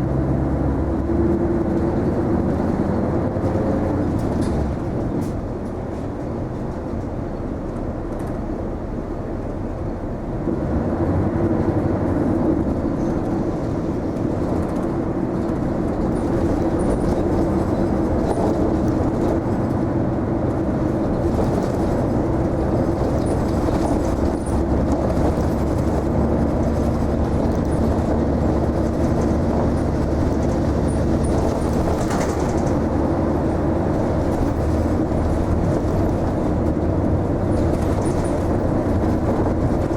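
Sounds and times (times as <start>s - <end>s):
bus engine and road noise: 0.0s - 39.9s.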